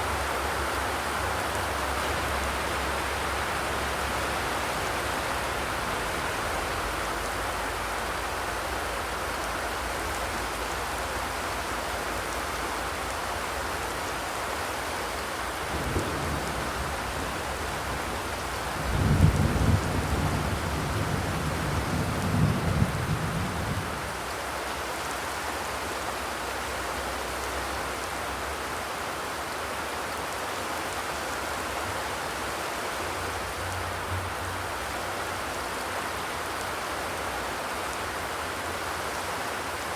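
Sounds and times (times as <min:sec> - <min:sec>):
rain drumming on a metal roof: 0:00.0 - 0:39.9.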